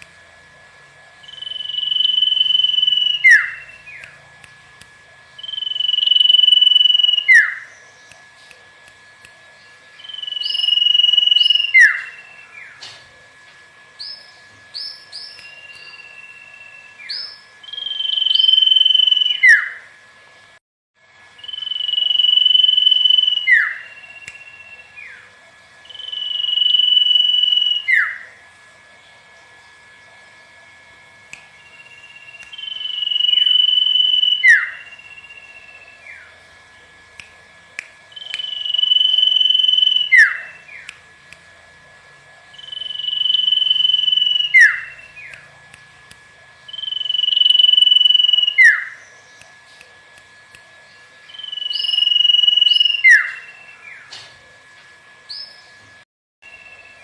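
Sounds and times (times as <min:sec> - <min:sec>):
bird whistling: 0:01.2 - 0:04.2, 0:05.4 - 0:07.8, 0:10.0 - 0:12.8, 0:14.0 - 0:19.9, 0:21.4 - 0:25.2, 0:25.8 - 0:28.2, 0:31.6 - 0:36.3, 0:38.1 - 0:40.9, 0:42.5 - 0:45.5, 0:46.7 - 0:49.3, 0:51.3 - 0:54.1.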